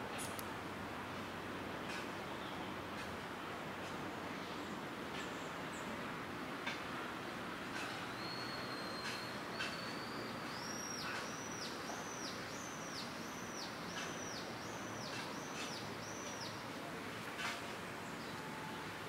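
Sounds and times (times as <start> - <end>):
steady background noise: 0.0 - 19.0
songbird singing: 7.8 - 19.0.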